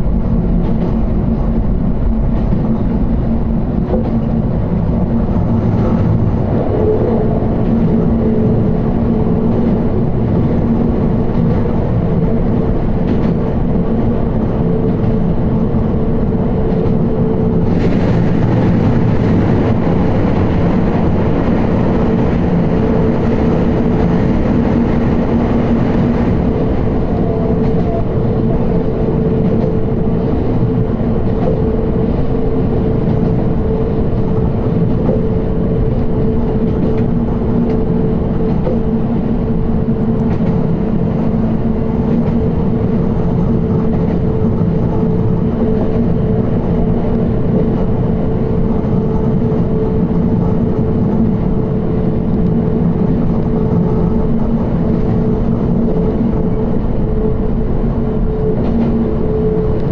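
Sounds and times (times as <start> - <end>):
train motor hum: 0.0 - 59.9
train wheels rumbling on rail: 0.0 - 59.9.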